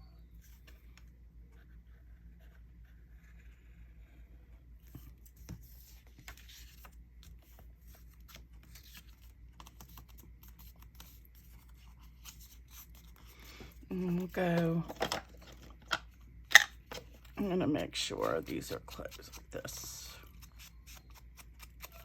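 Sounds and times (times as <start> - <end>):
faint low hum: 0.0 - 22.0
paper rustling and scraping: 4.8 - 15.8.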